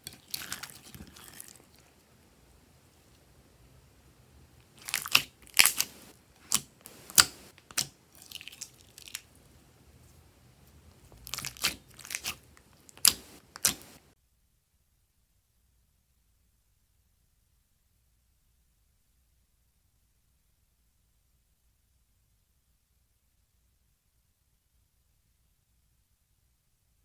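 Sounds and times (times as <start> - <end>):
crisp crunching and crinkling: 0.0 - 2.0, 4.6 - 9.5, 10.7 - 14.1.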